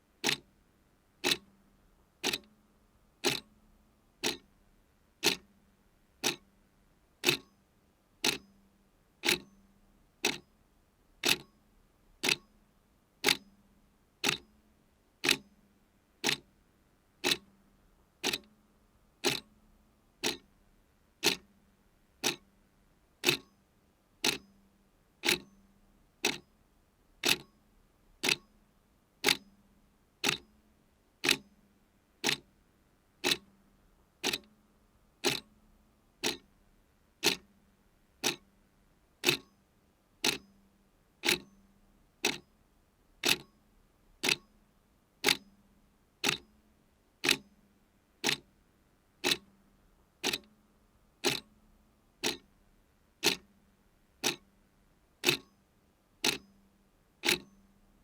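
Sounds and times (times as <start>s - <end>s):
clock ticking: 0.2s - 0.4s, 1.2s - 1.5s, 2.2s - 2.5s, 3.2s - 3.5s, 4.2s - 4.4s, 5.2s - 5.4s, 6.2s - 6.4s, 7.2s - 7.5s, 8.2s - 8.4s, 10.2s - 10.4s, 11.2s - 11.5s, 12.2s - 12.4s, 14.2s - 14.4s, 15.2s - 15.4s, 16.2s - 16.4s, 17.2s - 17.5s, 18.2s - 18.5s, 19.2s - 19.5s, 20.2s - 20.4s, 21.2s - 21.4s, 22.2s - 22.4s, 23.2s - 23.5s, 24.2s - 24.4s, 25.2s - 25.5s, 27.2s - 27.5s, 28.2s - 28.4s, 29.2s - 29.4s, 30.2s - 30.4s, 31.2s - 31.4s, 32.2s - 32.4s, 33.2s - 33.5s, 34.2s - 34.5s, 35.2s - 35.5s, 36.2s - 36.5s, 37.2s - 37.5s, 38.2s - 38.4s, 39.2s - 39.5s, 40.2s - 40.4s, 41.2s - 41.5s, 42.2s - 42.4s, 43.2s - 43.5s, 44.2s - 44.5s, 45.2s - 45.4s, 46.2s - 46.4s, 47.2s - 47.4s, 48.2s - 48.4s, 49.2s - 49.5s, 50.2s - 50.5s, 51.2s - 51.5s, 52.2s - 52.5s, 53.2s - 53.5s, 54.2s - 54.4s, 55.2s - 55.5s, 56.2s - 56.4s, 57.2s - 57.6s.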